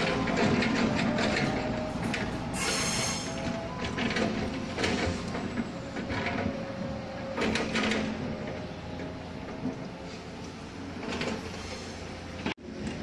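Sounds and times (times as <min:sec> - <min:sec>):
train wheels clicking over rails: 0:00.0 - 0:13.0
brief air hiss: 0:02.6 - 0:03.4.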